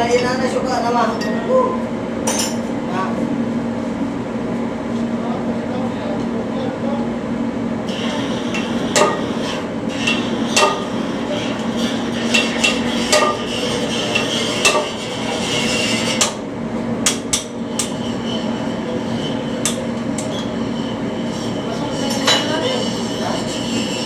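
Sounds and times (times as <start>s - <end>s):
hammer striking metal: 8.5s - 11.0s, 12.3s - 15.0s, 17.0s - 18.0s.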